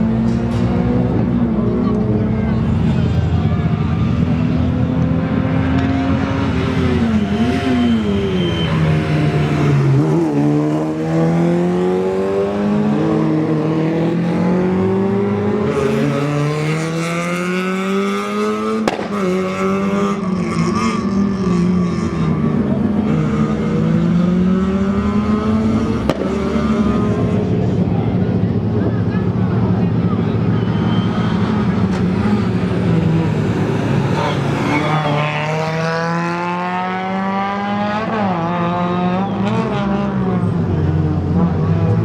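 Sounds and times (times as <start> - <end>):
rally car engines accelerating: 0.0 - 42.0
sharp crack: 18.8 - 19.5, 26.0 - 26.5.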